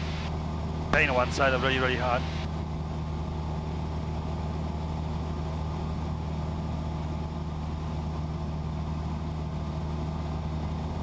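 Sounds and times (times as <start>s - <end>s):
propeller aircraft engine droning: 0.0s - 8.3s.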